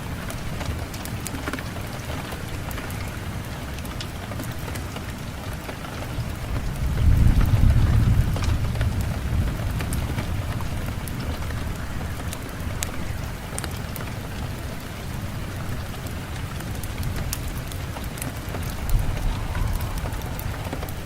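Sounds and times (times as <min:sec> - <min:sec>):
steady rain falling: 0:00.0 - 0:21.0
low rumble of thunder: 0:06.1 - 0:13.4, 0:16.9 - 0:21.0.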